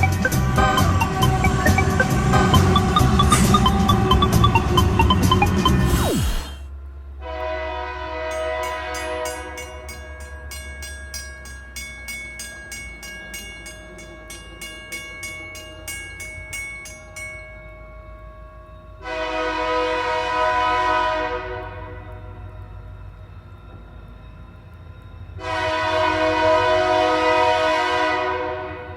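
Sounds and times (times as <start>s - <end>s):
crossing bell ringing: 0.0s - 5.8s, 7.9s - 28.2s
low train rumble: 0.0s - 28.9s
locomotive horn: 7.2s - 9.9s, 19.0s - 22.4s, 25.4s - 28.9s.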